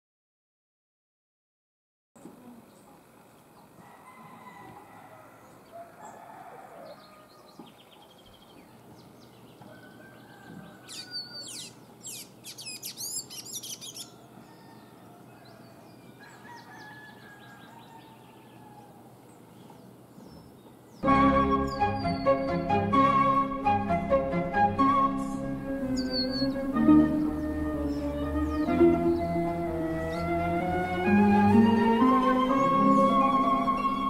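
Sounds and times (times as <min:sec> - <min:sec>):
birds whistling and chirping: 0:10.7 - 0:14.1, 0:21.5 - 0:23.4, 0:24.8 - 0:34.0
high squeaky bird notes: 0:10.9 - 0:14.1, 0:21.3 - 0:22.9, 0:24.9 - 0:34.0.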